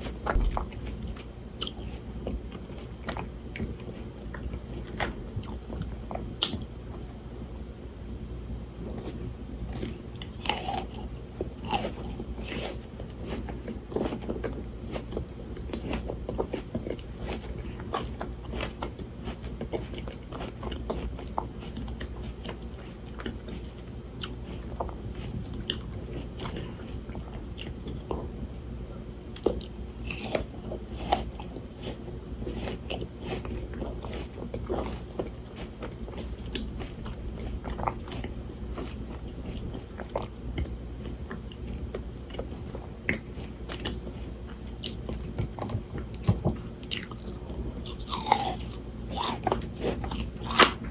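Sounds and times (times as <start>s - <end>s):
frozen grapes crunching: 8.9s - 23.4s, 29.3s - 39.6s, 44.7s - 50.9s.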